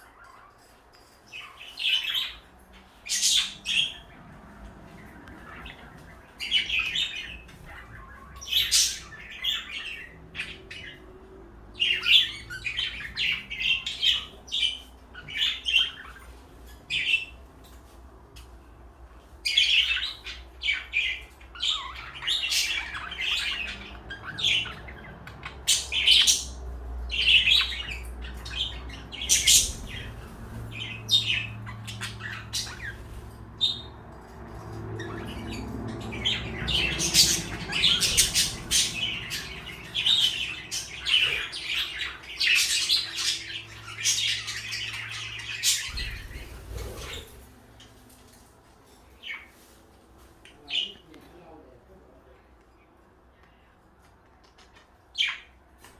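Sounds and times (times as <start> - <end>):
parakeets chirping: 0.0 - 53.2, 54.4 - 55.9
parakeet squawks: 19.5 - 33.9, 35.0 - 47.5.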